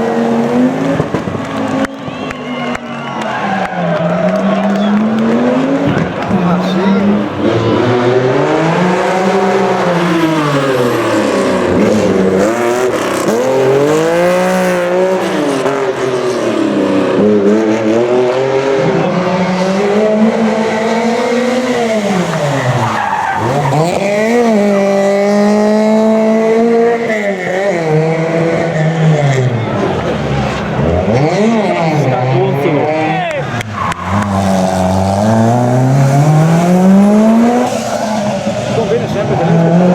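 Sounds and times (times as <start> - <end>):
car engine revving: 0.0 - 39.9
tyres squealing: 21.2 - 25.0.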